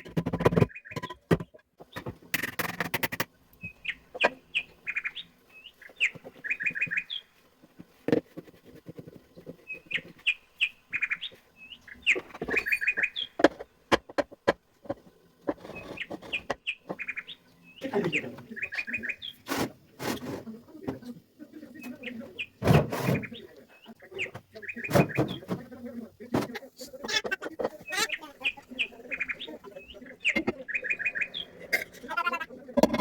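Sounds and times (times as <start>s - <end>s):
sharp clicks and knocks: 0.0s - 4.4s, 13.4s - 17.1s
small bird chirping: 3.6s - 13.5s, 15.6s - 19.5s, 26.9s - 32.6s.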